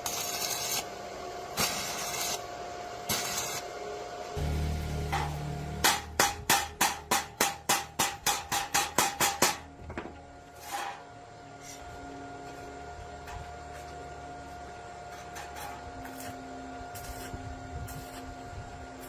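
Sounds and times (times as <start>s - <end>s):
hammer striking metal: 4.4s - 10.1s.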